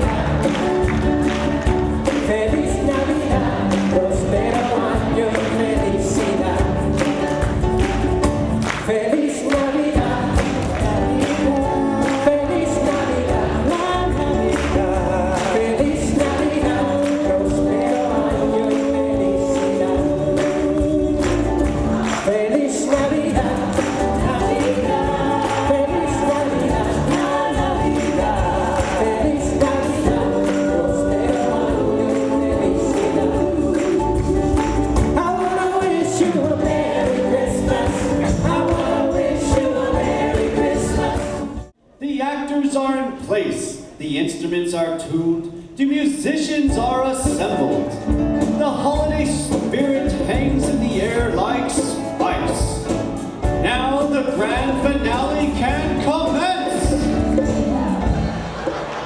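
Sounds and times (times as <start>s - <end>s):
choir singing gospel song: 0.0s - 41.8s, 54.3s - 59.0s
instrumental backing with beat: 0.0s - 41.8s.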